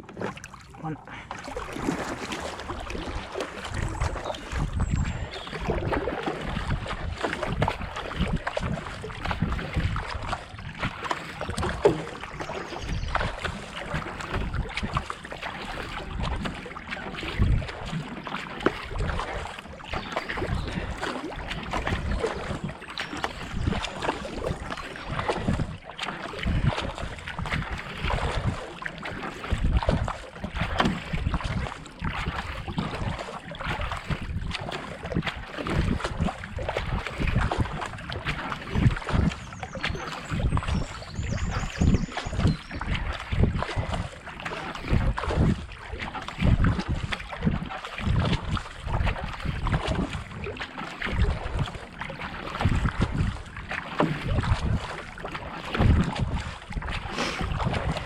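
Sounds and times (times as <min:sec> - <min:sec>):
kayak paddle strokes in water: 0:00.0 - 0:58.0
water splashes and drips: 0:00.0 - 0:58.0
wind buffeting microphone: 0:02.4 - 0:15.1, 0:15.8 - 0:17.9, 0:18.8 - 0:28.7, 0:29.4 - 0:58.0.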